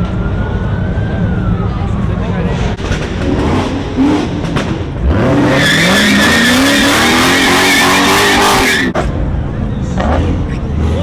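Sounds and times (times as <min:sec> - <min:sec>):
car engine revving: 0:02.6 - 0:09.2
tyres squealing: 0:05.3 - 0:09.0.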